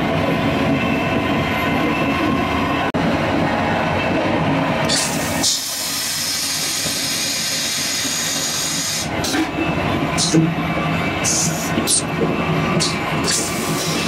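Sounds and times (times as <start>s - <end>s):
train rumble with hum: 0.0s - 14.0s.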